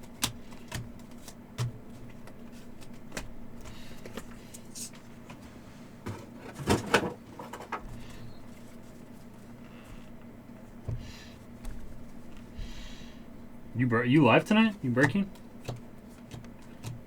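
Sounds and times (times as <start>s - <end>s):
trading cards clicking and slapping: 0.0s - 5.0s, 14.7s - 17.0s.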